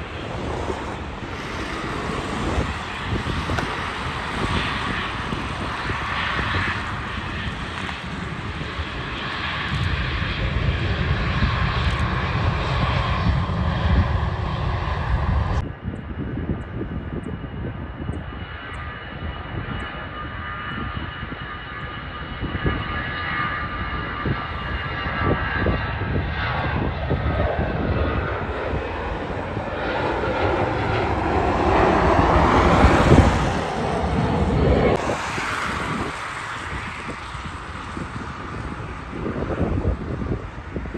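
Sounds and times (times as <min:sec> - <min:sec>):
faint high engine whine: 0:00.0 - 0:40.9
jet engines running: 0:00.0 - 0:40.9.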